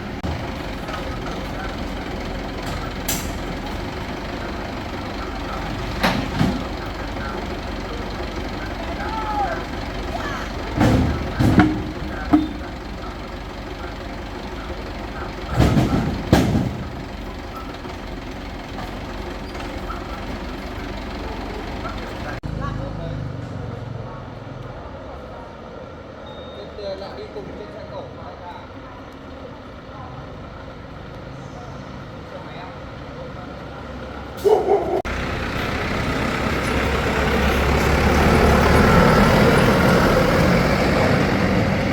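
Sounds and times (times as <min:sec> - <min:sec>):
heavy vehicle engine running: 0:00.0 - 0:26.2, 0:27.7 - 0:41.9
brief pitched tone: 0:26.2 - 0:26.7.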